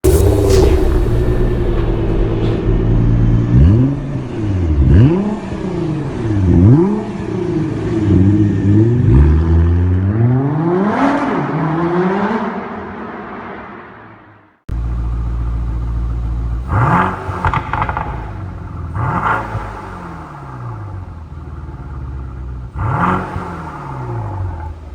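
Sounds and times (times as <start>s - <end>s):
car engine revving: 0.0s - 13.6s, 14.7s - 24.9s
car engine idling: 14.7s - 24.9s.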